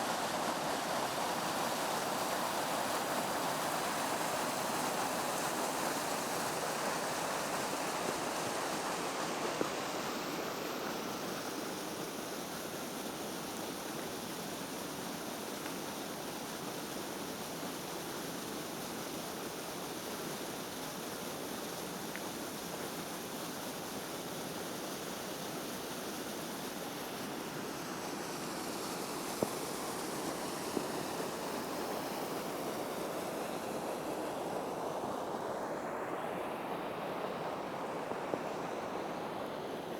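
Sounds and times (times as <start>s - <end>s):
waterfall rushing: 27.1s - 39.9s.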